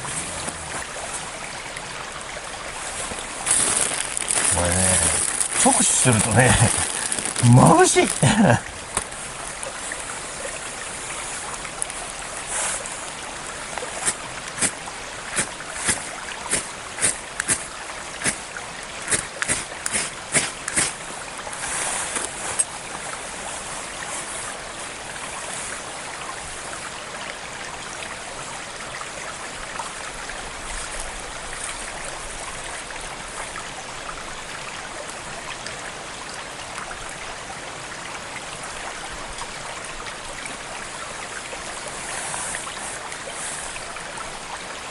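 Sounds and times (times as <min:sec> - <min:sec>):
stream flowing: 0:00.0 - 0:44.9.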